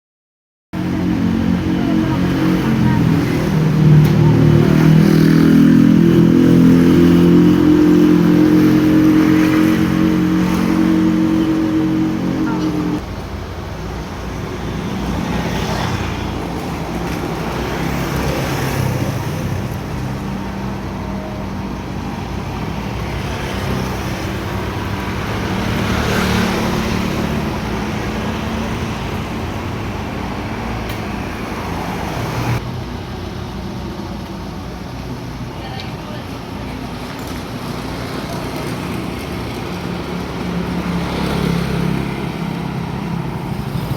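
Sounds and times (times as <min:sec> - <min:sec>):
vehicles passing on road: 0:00.8 - 0:43.9.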